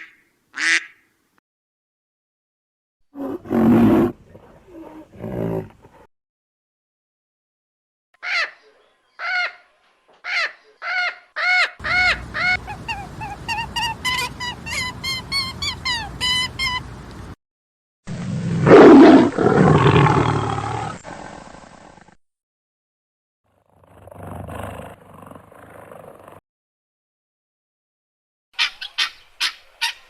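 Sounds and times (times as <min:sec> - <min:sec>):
animal short repeated calls: 0:10.3 - 0:17.1.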